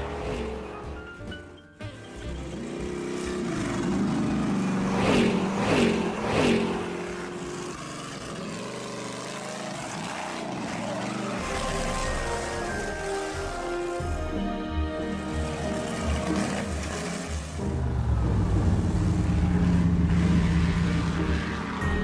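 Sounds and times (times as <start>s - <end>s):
cartoon truck engine running: 0.0s - 22.0s
engine revs sweeping down: 2.7s - 13.4s.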